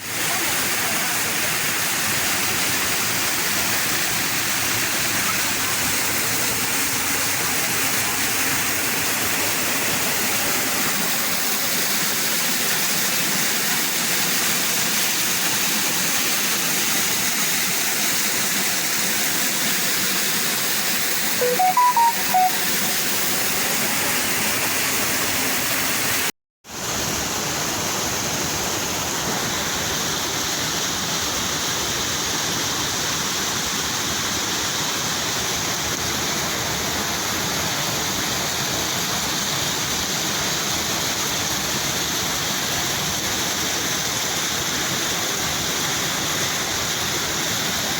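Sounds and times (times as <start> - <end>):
rushing water roar: 0.0 - 21.4, 23.0 - 47.9
short high notes: 21.4 - 23.2.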